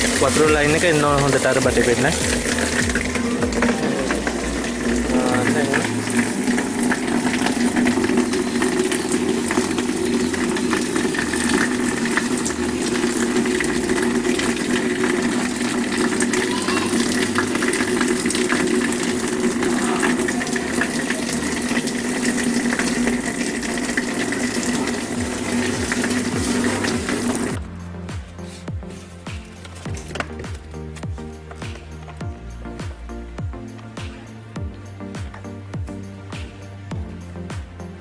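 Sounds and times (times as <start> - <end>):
water running through drain pipe: 0.0 - 27.6.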